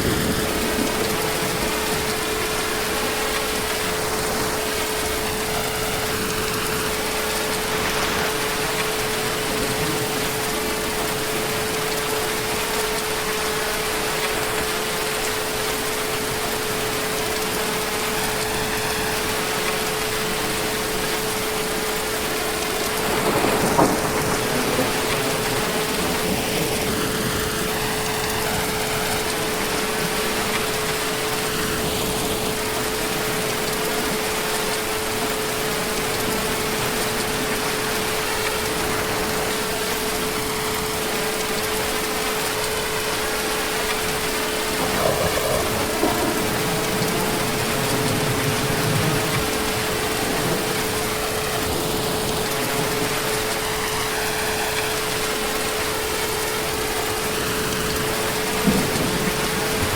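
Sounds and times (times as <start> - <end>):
thunder clap: 0.0 - 13.2, 20.6 - 33.8, 43.9 - 59.9
heavy rain falling: 0.0 - 59.9.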